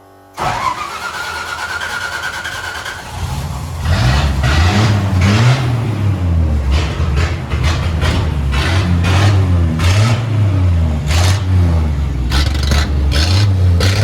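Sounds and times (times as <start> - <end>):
starter motor cranking: 0.4 - 3.5
engine revving: 0.4 - 14.0.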